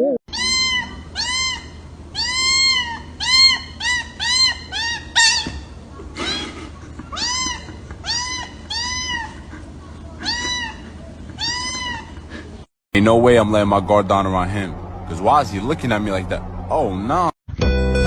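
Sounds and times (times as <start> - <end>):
cat meowing: 0.3 - 5.5, 6.2 - 9.4, 10.2 - 12.2.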